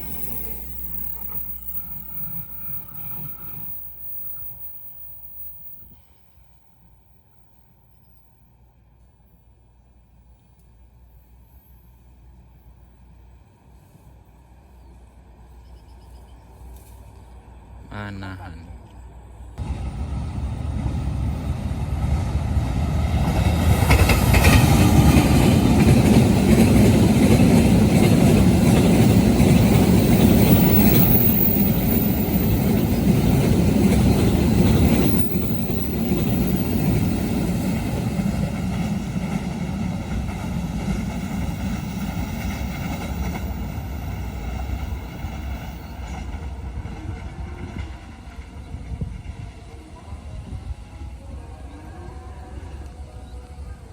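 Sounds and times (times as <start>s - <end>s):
train wheels clattering over rails: 19.6s - 49.5s.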